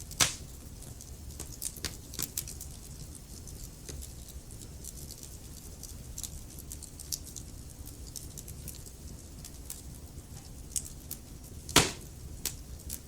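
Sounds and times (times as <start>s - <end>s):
fire snapping and ticking: 0.0s - 10.0s, 10.7s - 13.0s
loud pop from fire: 0.2s - 0.4s, 11.8s - 12.1s.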